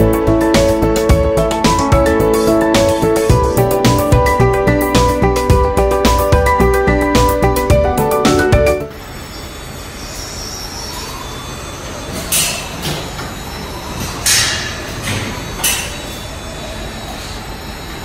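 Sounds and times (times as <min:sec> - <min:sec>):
squealing hissing swishes: 0:09.1 - 0:12.8.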